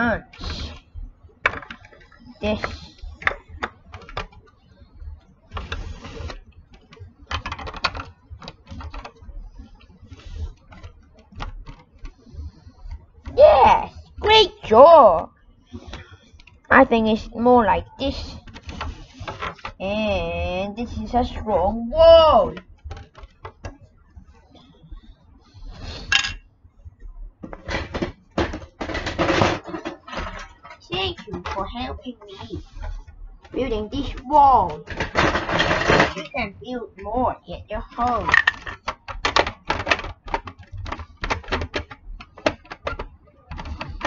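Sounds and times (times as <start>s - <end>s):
plastic blocks clicking: 5.5s - 9.2s, 38.0s - 44.0s.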